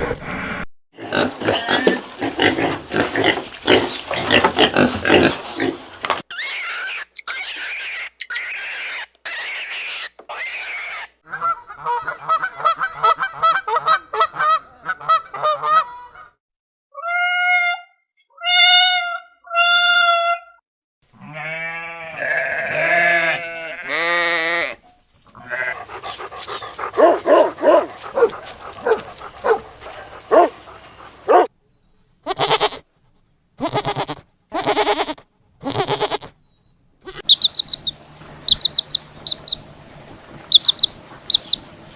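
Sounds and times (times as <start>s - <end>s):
animals calling: 6.3s - 13.2s, 25.3s - 31.5s, 37.0s - 41.9s.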